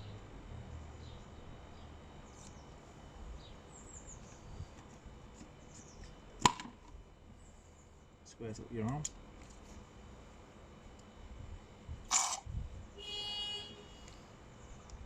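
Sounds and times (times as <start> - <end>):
low steady rumble: 6.0 - 15.0.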